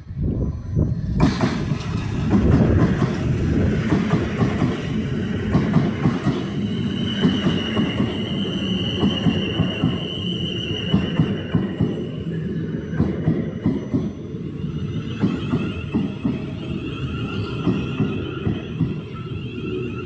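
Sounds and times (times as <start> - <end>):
train wheels clattering on track: 0.9 - 14.2, 14.8 - 19.7
high wheel squeal: 6.4 - 20.0.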